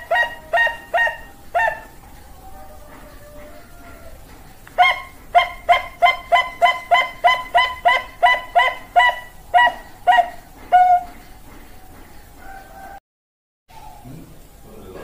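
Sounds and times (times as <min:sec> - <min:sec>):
dove cooing: 0:00.0 - 0:11.3.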